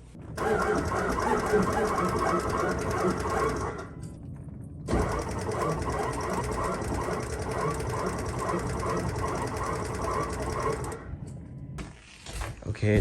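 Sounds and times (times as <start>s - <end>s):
diesel engine cranking: 0.3s - 4.0s, 4.9s - 11.1s.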